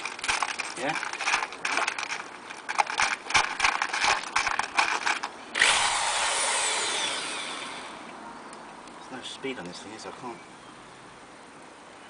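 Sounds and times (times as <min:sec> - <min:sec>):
handling clicks and knocks: 0:00.0 - 0:05.4
electric drill running: 0:05.6 - 0:08.1.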